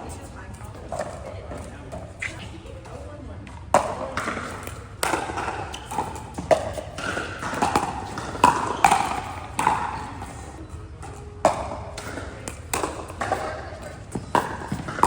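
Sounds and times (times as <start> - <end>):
ball bouncing on court: 0.6 - 10.4, 11.0 - 15.0
paddles hitting plastic ball: 3.7 - 10.4, 11.0 - 15.0.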